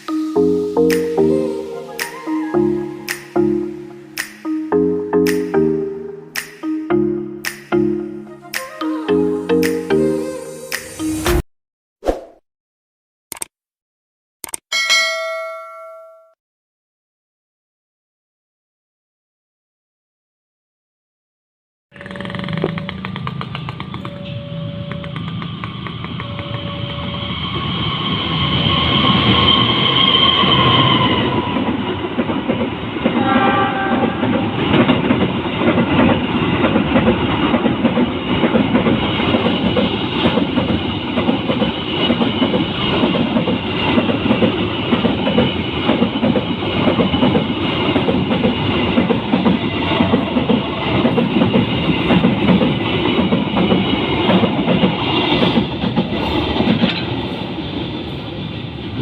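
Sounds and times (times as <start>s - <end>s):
freight train rumbling past: 22.9s - 59.0s
train horn: 29.0s - 31.8s, 33.1s - 34.7s.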